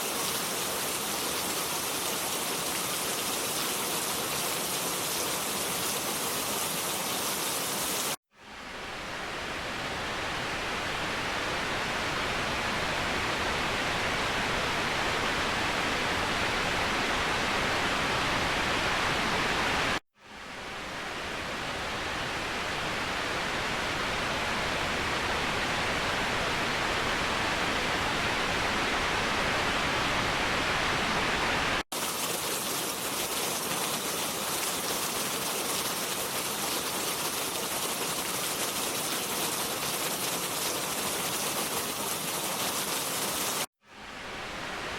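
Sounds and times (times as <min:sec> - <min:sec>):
waterfall rushing: 0:31.6 - 0:44.9.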